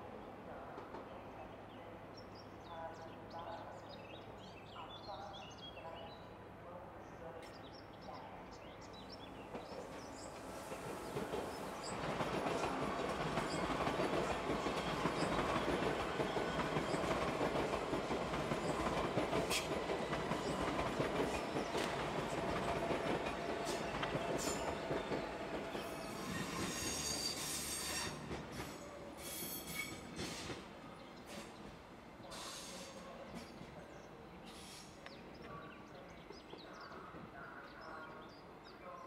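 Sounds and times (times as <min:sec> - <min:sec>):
train wheels rumbling on rails: 0:09.2 - 0:34.9
high wheel squeal: 0:26.0 - 0:28.2.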